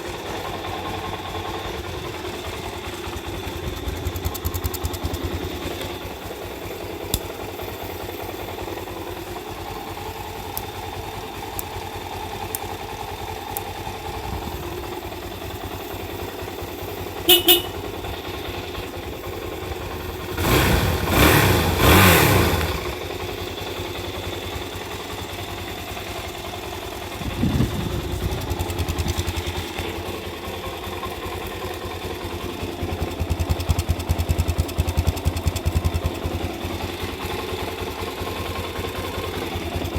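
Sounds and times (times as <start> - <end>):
motorcycle engine idling: 0.0 - 39.9
engine throttle blips: 17.1 - 17.9.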